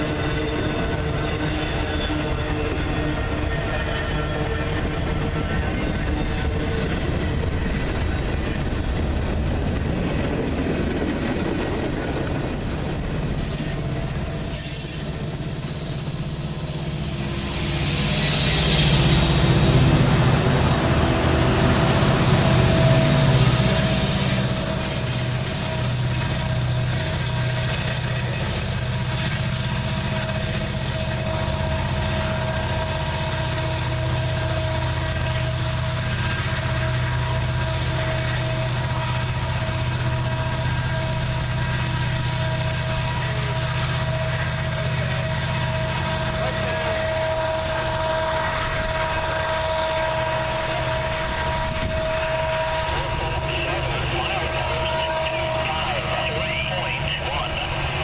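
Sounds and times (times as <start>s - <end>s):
freight train rumbling: 0.0s - 58.0s
high whine: 12.2s - 58.0s.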